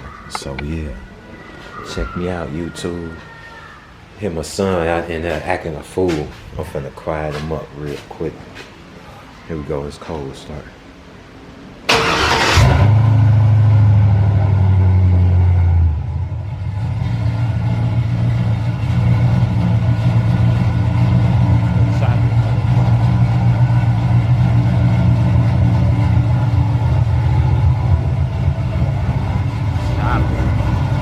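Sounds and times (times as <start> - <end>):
engine cranking: 11.9 - 13.0
car engine idling: 11.9 - 31.0.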